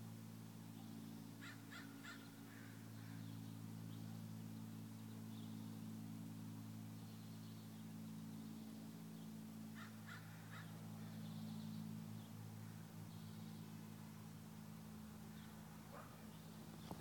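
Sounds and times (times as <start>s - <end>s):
steady low hum: 0.0s - 17.0s
harsh bird calls: 1.4s - 3.4s.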